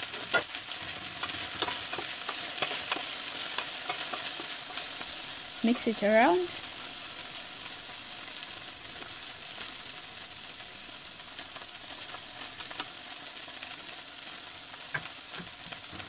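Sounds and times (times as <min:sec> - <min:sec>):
okra sizzling in hot oil: 0:00.0 - 0:16.0
wooden spoon stirring: 0:00.2 - 0:05.1.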